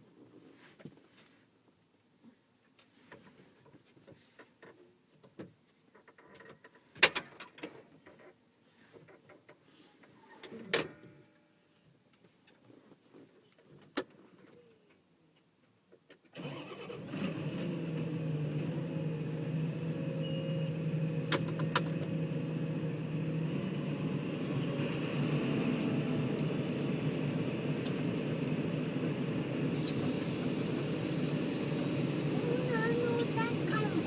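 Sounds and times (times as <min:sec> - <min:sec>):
tractor engine starting and running: 0:16.4 - 0:34.0.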